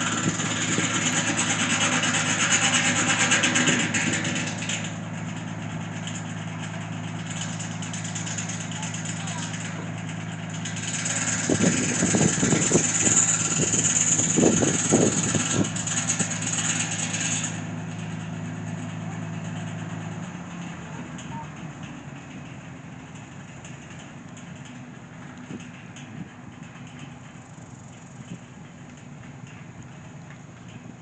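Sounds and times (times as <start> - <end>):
voices: 0.0 - 4.6, 5.8 - 15.8, 18.8 - 22.6
engine humming: 0.0 - 31.0.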